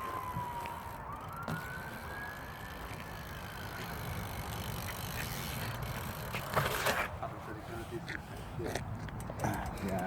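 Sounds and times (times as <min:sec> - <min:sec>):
distant siren wailing: 0:00.0 - 0:03.9.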